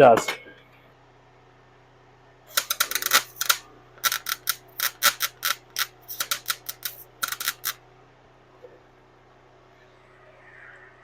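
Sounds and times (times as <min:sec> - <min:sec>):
welding arc bursts: 0:02.5 - 0:07.8.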